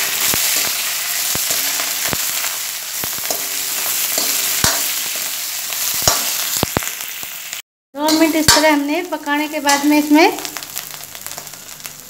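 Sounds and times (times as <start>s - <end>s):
metal spoon scraping a pan: 0.0s - 6.7s, 9.4s - 10.5s
chillies sizzling in hot oil: 0.0s - 12.0s.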